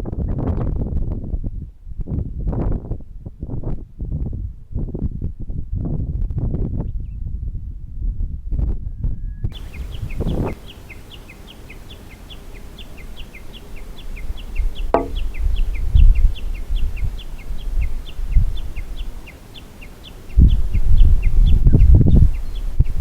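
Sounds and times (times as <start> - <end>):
bird chirping: 9.6 - 23.0
low rumbling thumps: 14.8 - 15.7
sharp knock: 15.0 - 15.2.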